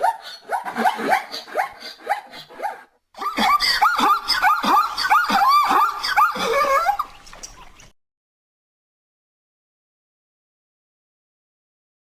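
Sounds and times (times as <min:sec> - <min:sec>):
animal yelping calls: 0:00.0 - 0:07.9.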